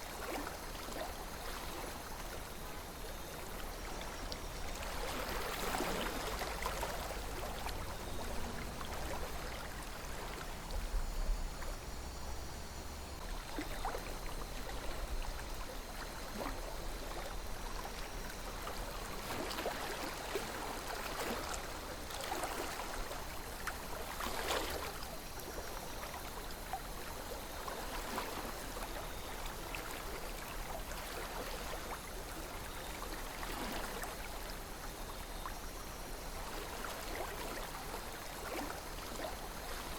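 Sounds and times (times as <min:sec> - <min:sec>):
river flowing: 0:00.0 - 0:28.8
water splashes and gurgles: 0:00.0 - 0:39.9.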